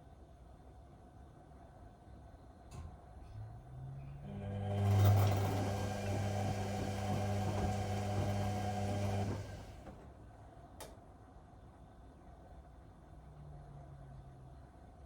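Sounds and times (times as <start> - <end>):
washing machine running: 4.2 - 10.1.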